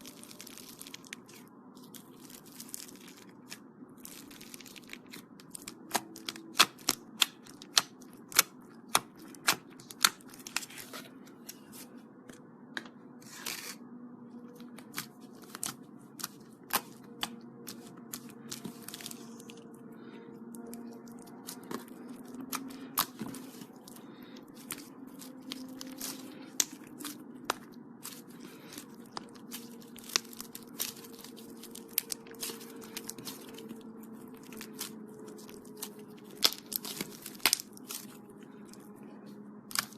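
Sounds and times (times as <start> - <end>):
slime crackling and popping: 0.0 - 10.8, 20.5 - 38.8, 39.7 - 39.9.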